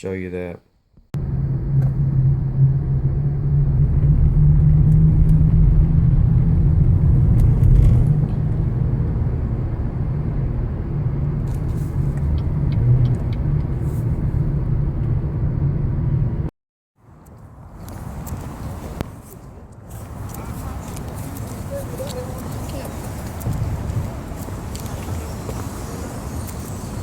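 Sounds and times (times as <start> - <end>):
loud low rumble: 1.1 - 16.5.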